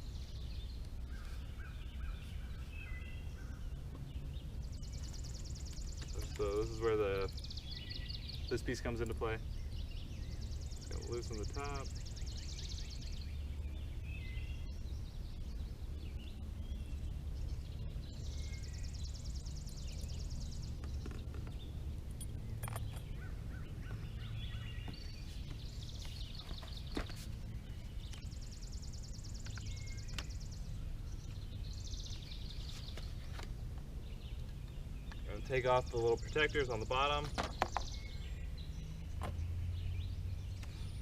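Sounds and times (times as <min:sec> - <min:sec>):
steady low rumble: 0:00.0 - 0:37.2.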